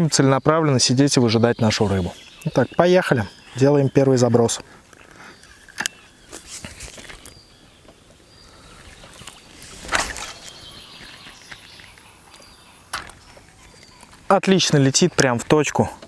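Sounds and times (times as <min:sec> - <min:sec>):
fishing line casting out: 0:08.5 - 0:13.1.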